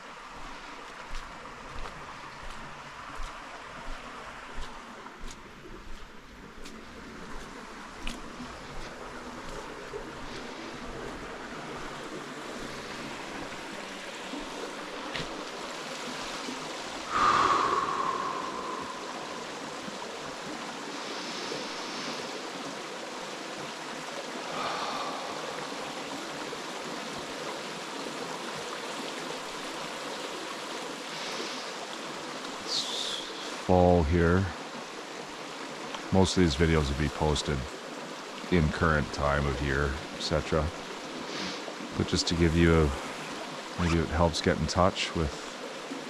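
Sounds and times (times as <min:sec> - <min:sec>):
forest stream rushing: 0:00.0 - 0:46.0
faint high calls: 0:17.1 - 0:19.9.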